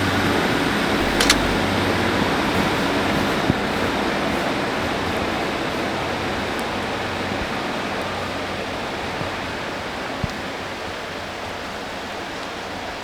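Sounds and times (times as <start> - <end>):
rain hissing: 1.0 - 10.6.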